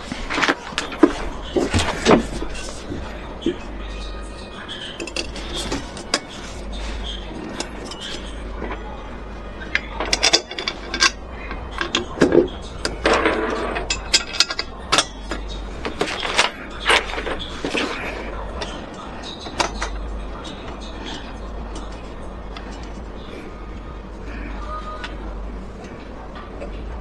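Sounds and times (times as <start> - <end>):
steady low hum: 0.0 - 27.0
clicks knocks and clinks: 9.6 - 18.0.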